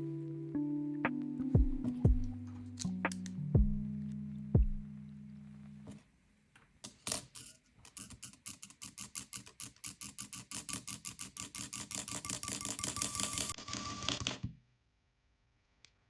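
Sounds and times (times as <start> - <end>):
typing on mechanical keyboard: 7.9 - 14.4.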